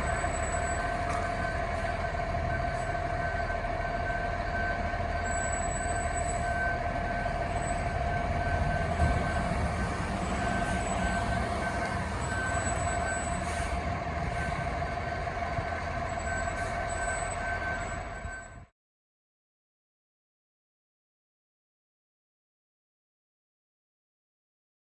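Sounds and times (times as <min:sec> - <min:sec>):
constant whine: 0:00.0 - 0:18.7
large vehicle engine rumble: 0:00.0 - 0:18.7.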